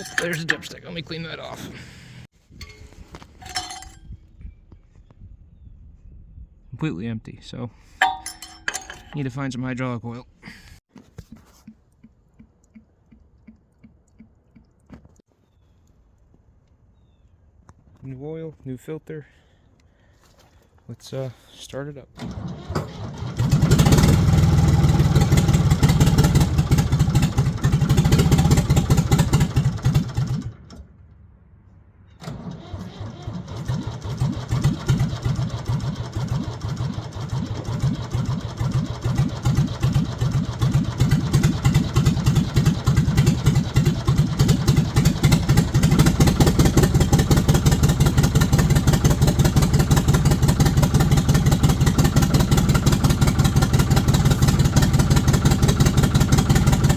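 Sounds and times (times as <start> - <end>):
diesel engine starting and running: 0.0 - 4.0, 22.2 - 56.9.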